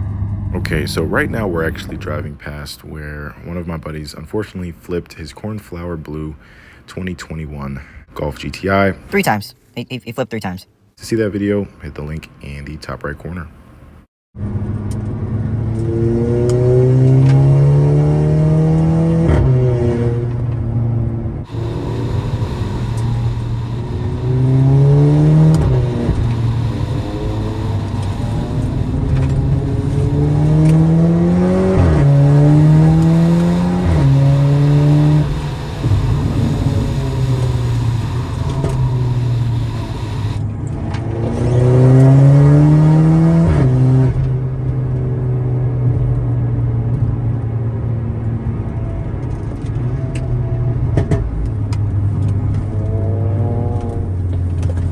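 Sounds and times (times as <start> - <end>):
car engine revving through gears: 14.4 - 47.2, 47.8 - 54.9.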